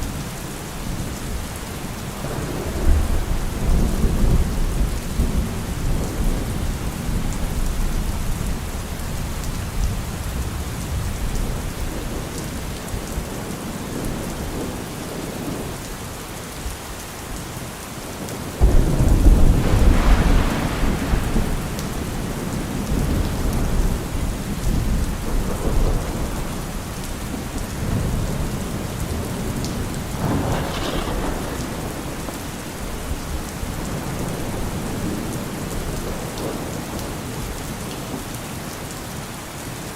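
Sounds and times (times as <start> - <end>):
steady rain: 0.0 - 39.9
loud thunderclap: 2.2 - 8.3, 18.6 - 37.0
rolling thunder: 2.2 - 15.7, 18.6 - 37.6.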